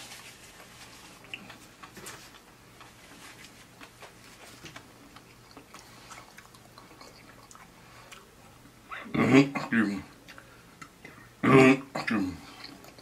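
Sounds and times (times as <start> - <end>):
chewing with wet mouth clicks: 5.1 - 8.3.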